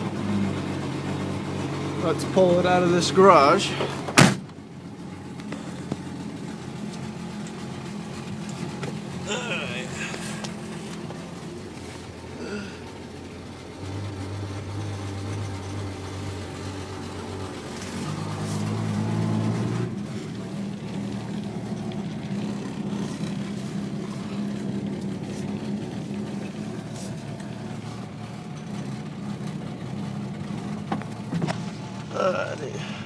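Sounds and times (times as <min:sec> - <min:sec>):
car engine running: 0:00.0 - 0:33.0.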